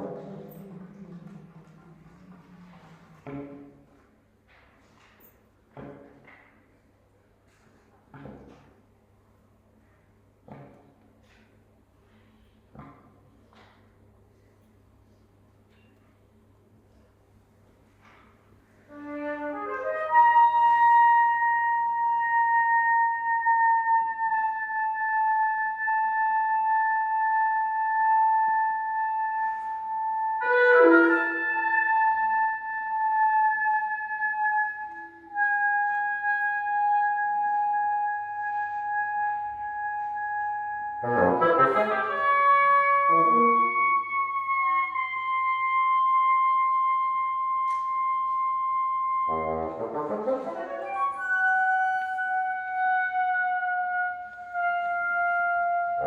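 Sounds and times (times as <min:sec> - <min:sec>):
wind ensemble chamber music: 0:00.0 - 0:04.1, 0:18.9 - 0:47.6, 0:48.2 - 0:56.0.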